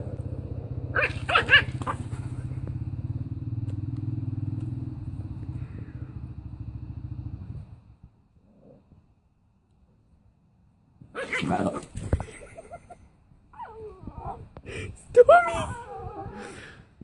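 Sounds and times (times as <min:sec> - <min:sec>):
low pulsing rumble: 0:00.0 - 0:08.2
puppy yapping: 0:00.9 - 0:02.1.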